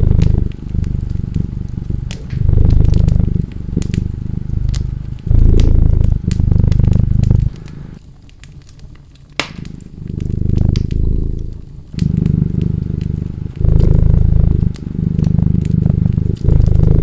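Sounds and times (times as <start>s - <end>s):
cat purring: 0.0s - 17.0s
wood fire crackling: 0.0s - 17.0s.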